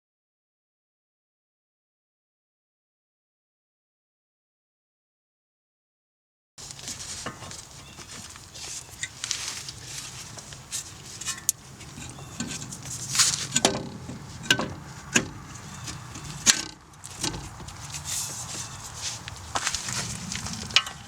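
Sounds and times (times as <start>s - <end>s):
sharp metal knocks: 11.2s - 17.8s.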